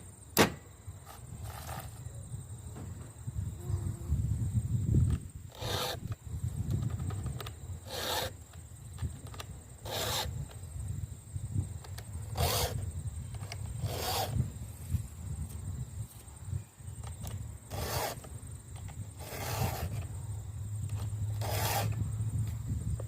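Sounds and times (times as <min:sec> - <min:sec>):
file rasping on chainsaw chain: 0:05.5 - 0:06.2, 0:07.8 - 0:08.4, 0:09.8 - 0:10.4, 0:12.3 - 0:12.8, 0:13.8 - 0:14.4, 0:17.7 - 0:18.3, 0:19.2 - 0:20.0, 0:21.4 - 0:22.0.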